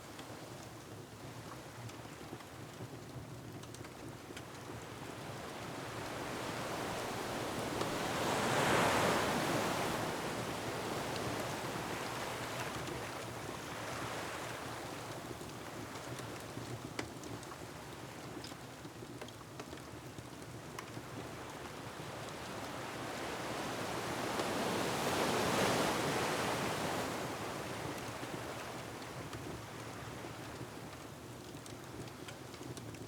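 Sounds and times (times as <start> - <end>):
wood fire crackles: 0.0 - 24.5, 25.1 - 33.0
ocean waves on shore: 5.3 - 15.1, 21.8 - 29.0.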